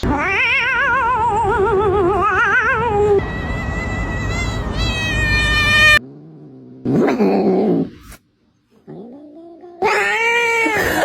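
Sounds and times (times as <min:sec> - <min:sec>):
cat yowling: 0:00.0 - 0:06.0, 0:09.8 - 0:11.0.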